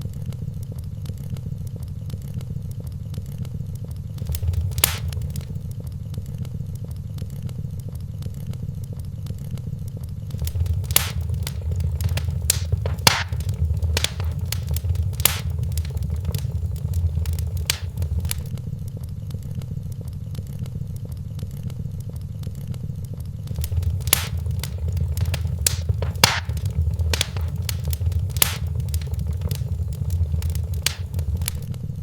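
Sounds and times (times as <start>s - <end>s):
low rumble: 4.2s - 5.6s, 10.4s - 18.5s, 23.5s - 31.7s
wood fire crackling: 4.2s - 5.6s, 10.3s - 18.5s, 23.5s - 31.7s.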